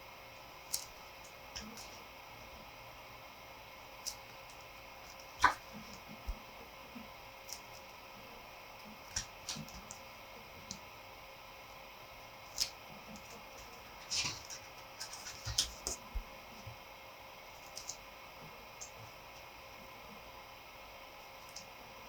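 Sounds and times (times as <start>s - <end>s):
faint room hiss: 0.0s - 22.0s
pages rustling: 14.0s - 16.1s.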